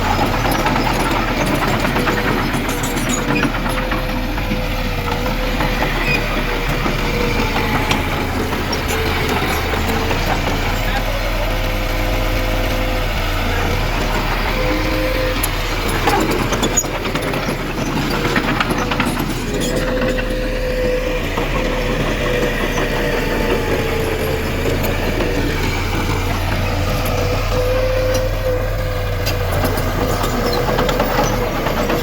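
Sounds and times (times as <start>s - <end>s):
heavy diesel machinery running: 0.0s - 32.0s
knocking and clatter: 0.0s - 32.0s.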